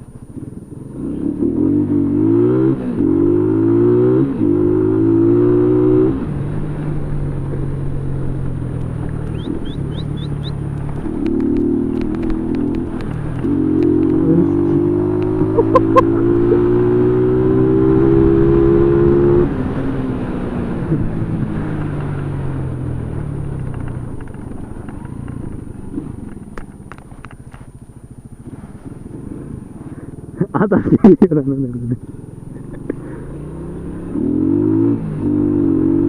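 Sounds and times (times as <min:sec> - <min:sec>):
motorcycle engine accelerating: 0:00.0 - 0:36.0.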